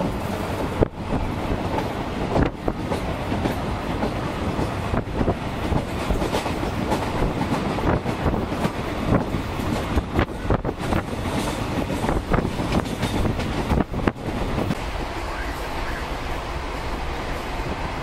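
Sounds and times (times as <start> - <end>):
train coach rumble and rattle: 0.0 - 18.0
wheels clicking over rail joints: 1.1 - 14.9.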